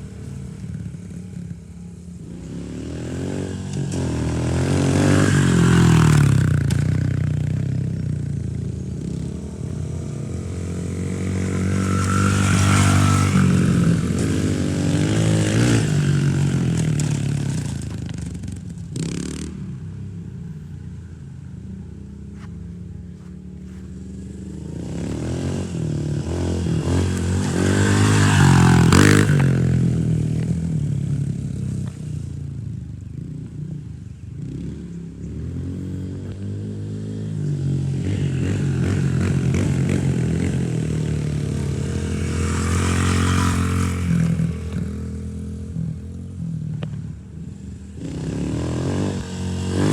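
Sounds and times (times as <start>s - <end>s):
dirt bike engine revving: 2.3s - 18.3s, 23.2s - 31.7s, 34.4s - 46.4s, 47.8s - 49.9s.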